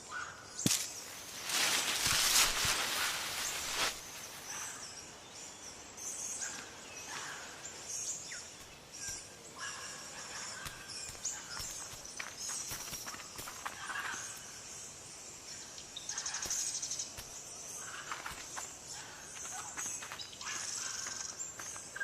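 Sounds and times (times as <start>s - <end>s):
soft hiss: 0.5s - 18.9s
bird chirps: 3.4s - 14.7s.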